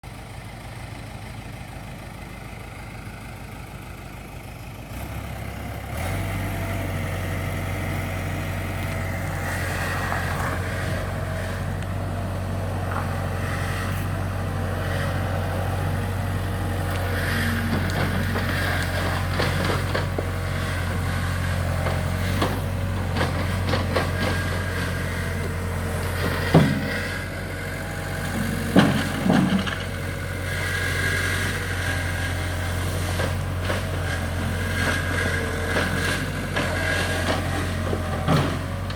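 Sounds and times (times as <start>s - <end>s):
diesel engine running: 0.0s - 38.9s
knocks and clanks: 17.7s - 21.0s, 21.8s - 24.8s, 26.2s - 27.2s, 28.2s - 29.9s, 35.7s - 38.9s.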